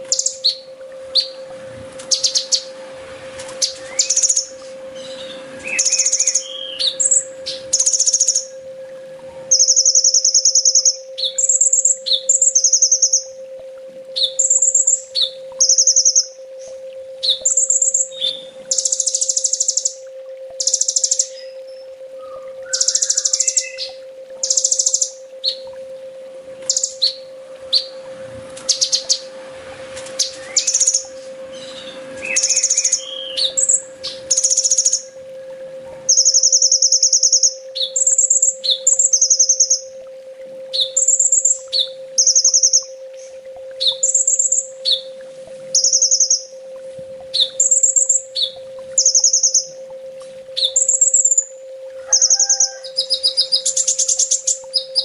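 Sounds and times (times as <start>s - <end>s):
bird singing buzzy trills: 0.0s - 55.0s
faint steady hum: 0.0s - 55.0s.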